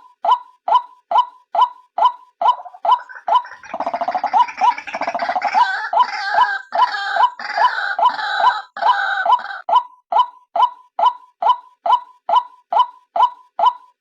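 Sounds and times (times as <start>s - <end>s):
waterhen croaking and chattering: 2.4s - 9.7s.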